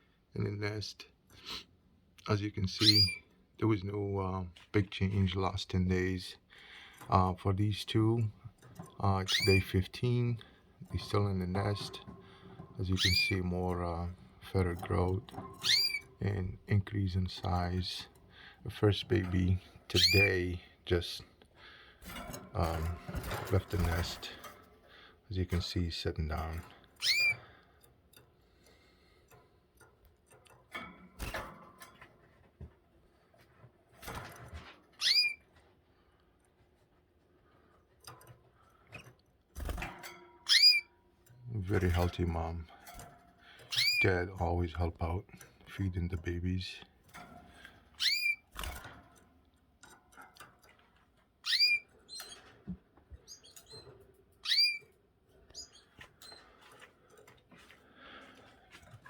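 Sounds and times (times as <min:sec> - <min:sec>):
birds rustling and clicking: 0:01.2 - 0:59.0
loud upsweeping chirp: 0:02.8 - 0:03.2
soft canary call: 0:02.8 - 0:03.3, 0:09.2 - 0:10.2, 0:12.8 - 0:13.4, 0:15.6 - 0:16.2, 0:19.9 - 0:20.5, 0:27.0 - 0:27.6, 0:35.0 - 0:35.5, 0:40.4 - 0:40.9, 0:43.7 - 0:44.1, 0:48.0 - 0:48.4, 0:51.4 - 0:52.4, 0:53.2 - 0:54.9.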